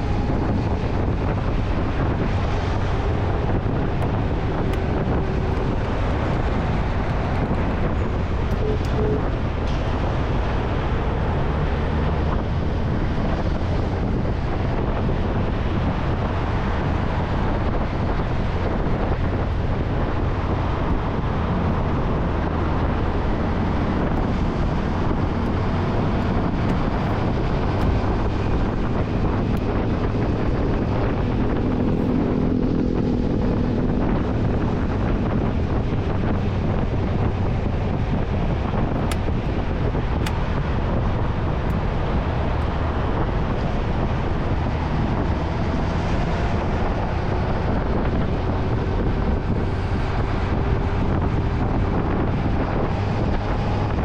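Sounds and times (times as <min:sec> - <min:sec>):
wind rushing on microphone: 0:00.0 - 0:54.0
motorcycle engine running: 0:01.5 - 0:10.3.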